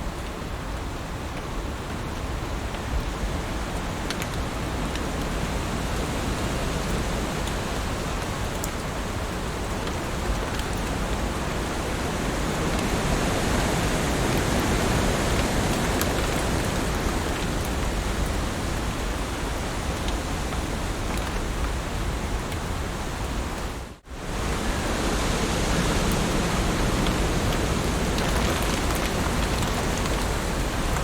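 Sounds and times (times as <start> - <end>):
heavy rain on leaves: 0.0 - 31.0
raindrop ticks: 0.2 - 22.8, 26.0 - 31.0.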